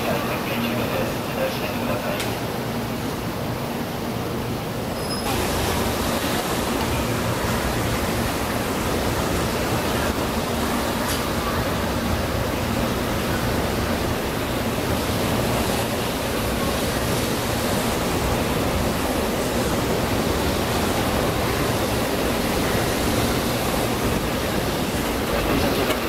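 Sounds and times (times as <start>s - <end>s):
train rushing past: 0.0s - 26.0s.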